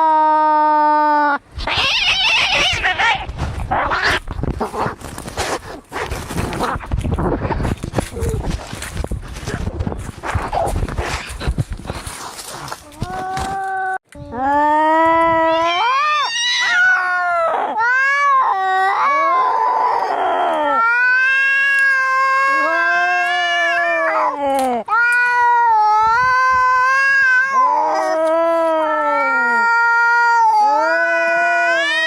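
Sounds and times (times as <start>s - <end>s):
cats yowling: 1.6s - 4.2s, 15.4s - 32.0s.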